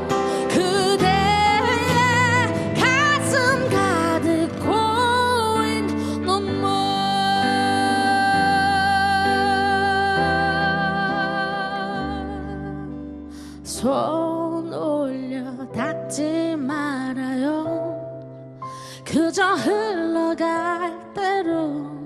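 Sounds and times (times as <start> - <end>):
soft band accompaniment: 0.0 - 12.3
woman singing with vibrato: 0.0 - 13.0, 19.1 - 22.0.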